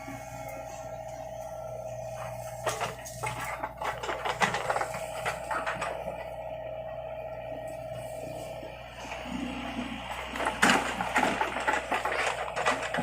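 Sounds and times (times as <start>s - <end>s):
mini excavator drone: 0.0s - 13.0s
metallic clanks and rattles: 2.6s - 6.3s, 10.3s - 13.0s.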